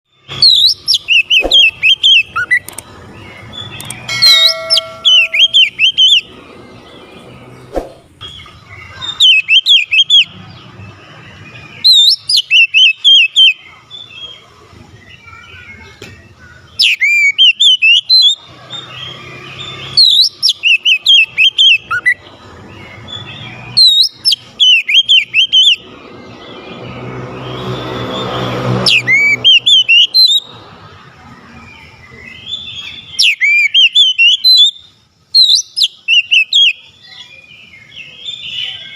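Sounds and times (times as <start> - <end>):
bird singing swooping whistles: 0.4 - 2.7, 19.8 - 22.2, 23.1 - 25.9, 27.7 - 30.5, 32.2 - 37.2.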